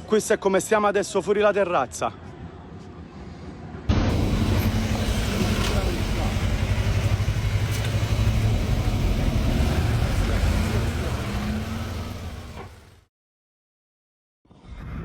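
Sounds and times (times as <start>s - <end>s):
loud outdoor rumble: 3.9s - 13.1s.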